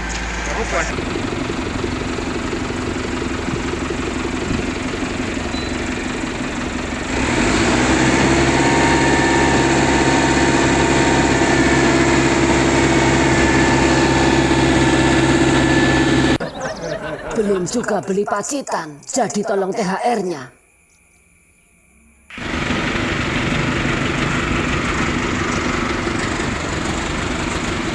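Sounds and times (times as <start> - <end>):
diesel engine running and revving: 0.0 - 16.4, 22.2 - 27.9.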